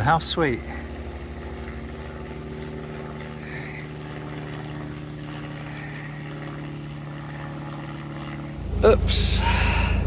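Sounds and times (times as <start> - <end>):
boat engine humming: 0.0 - 10.0.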